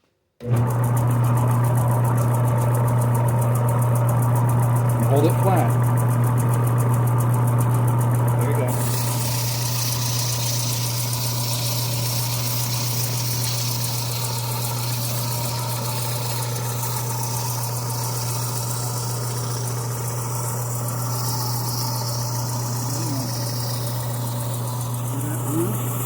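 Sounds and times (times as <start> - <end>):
electric motor humming: 0.4 - 26.0
sandpaper on metal: 8.7 - 19.9, 21.0 - 26.0.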